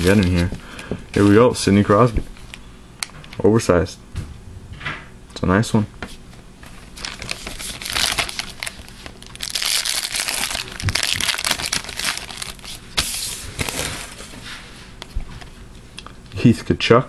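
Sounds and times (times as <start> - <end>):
card pack wrapper crinkling: 0.0 - 0.6, 6.9 - 14.2
cards being shuffled: 0.0 - 0.6.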